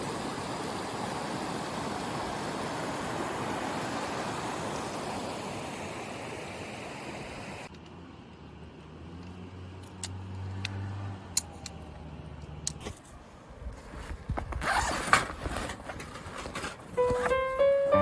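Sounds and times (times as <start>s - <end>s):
steady rushing noise: 0.0s - 7.7s.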